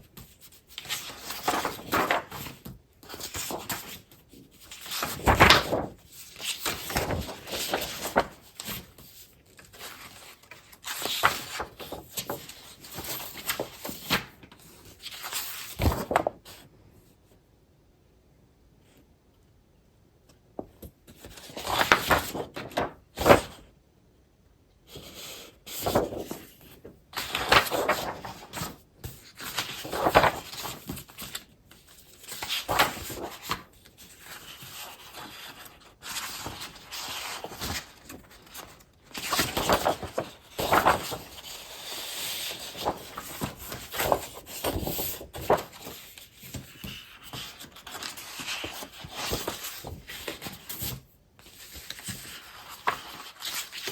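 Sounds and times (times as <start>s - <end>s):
paper rustling and crinkling: 0.0s - 16.6s, 20.6s - 23.6s, 25.7s - 53.9s.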